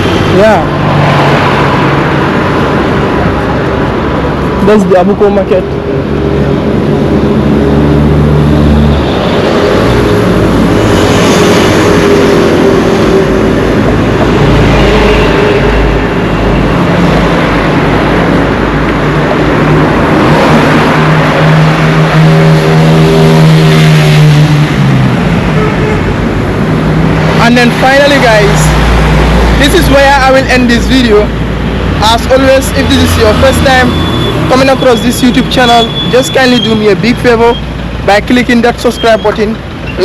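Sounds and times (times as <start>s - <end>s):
road noise: 0.0s - 40.0s
vehicle engines running: 0.0s - 40.0s.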